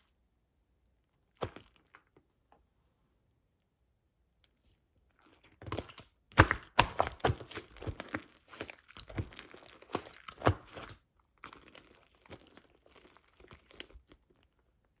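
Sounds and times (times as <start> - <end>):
slime squished by hand: 5.4 - 14.5.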